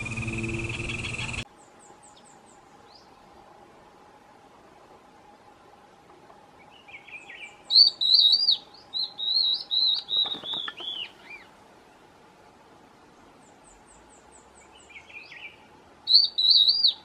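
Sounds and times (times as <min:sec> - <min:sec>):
songbird warbling: 0:00.0 - 0:01.4, 0:06.6 - 0:11.5, 0:13.5 - 0:17.0
faint steady hum: 0:00.0 - 0:17.0.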